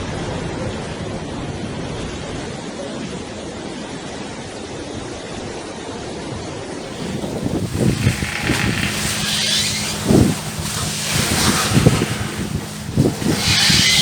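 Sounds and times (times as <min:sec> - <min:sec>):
sea waves rushing: 0:06.9 - 0:14.0.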